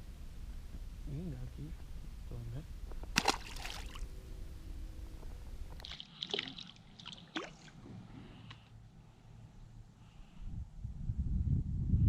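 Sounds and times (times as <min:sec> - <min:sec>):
low rumble: 0:00.0 - 0:05.8, 0:07.7 - 0:12.0
water splashing against boat: 0:03.1 - 0:04.0, 0:05.8 - 0:08.1.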